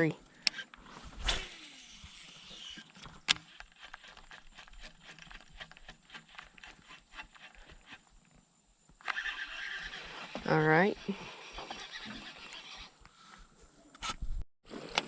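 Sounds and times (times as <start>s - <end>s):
fishing reel clicking: 1.2s - 8.0s.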